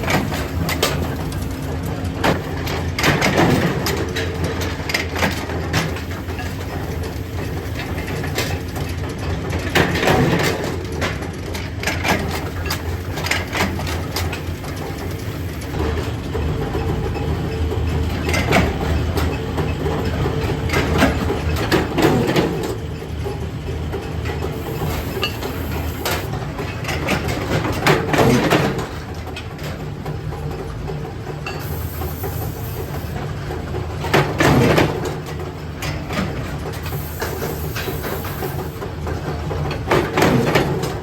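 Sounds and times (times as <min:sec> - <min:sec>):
machinery humming: 0:00.0 - 0:26.5, 0:30.7 - 0:35.8.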